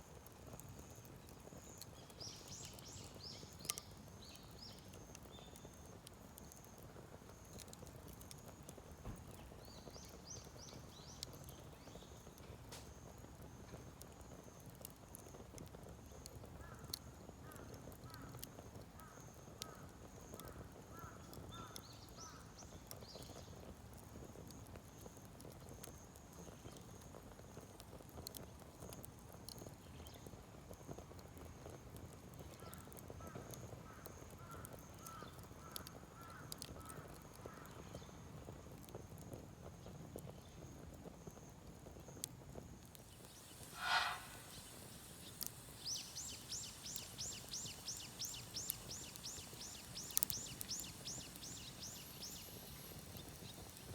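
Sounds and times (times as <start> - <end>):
wood fire crackling: 0.0 - 53.9
rising chirps: 43.2 - 53.7.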